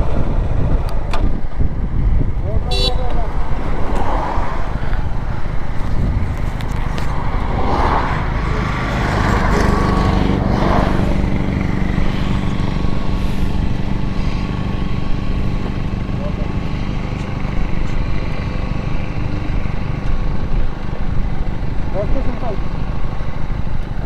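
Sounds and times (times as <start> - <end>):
wind noise on microphone: 0.0 - 15.9
motorcycle engine running: 8.2 - 24.0.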